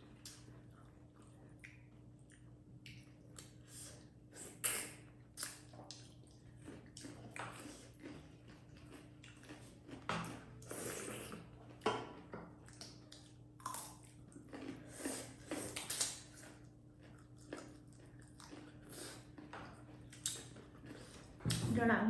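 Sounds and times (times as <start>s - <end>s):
faint steady hum: 0.0s - 22.0s
person chewing: 0.1s - 21.4s
wet mouth smacks: 4.6s - 6.0s.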